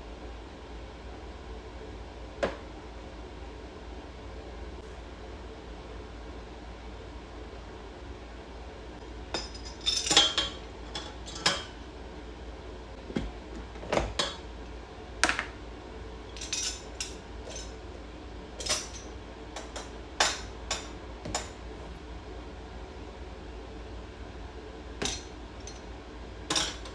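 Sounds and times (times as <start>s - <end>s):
low steady hum: 0.0s - 26.9s
dishes and cutlery clinking: 9.4s - 11.8s, 16.3s - 17.8s, 18.6s - 22.0s, 25.0s - 25.9s, 26.5s - 26.9s.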